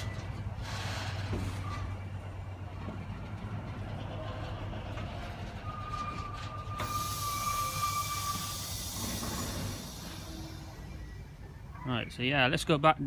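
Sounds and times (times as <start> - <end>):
diesel locomotive idling: 0.0 - 13.0
loud hiss of air: 6.8 - 11.4.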